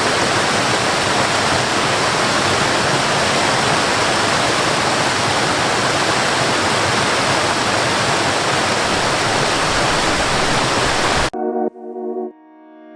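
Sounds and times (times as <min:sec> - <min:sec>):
waterfall rushing: 0:00.0 - 0:11.3.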